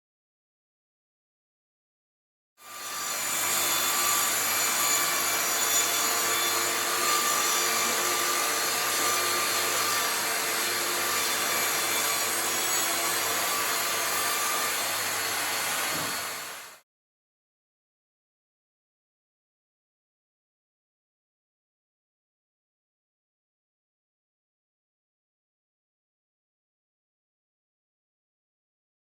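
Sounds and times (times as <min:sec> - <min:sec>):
power tool motor hissing: 0:02.6 - 0:16.8.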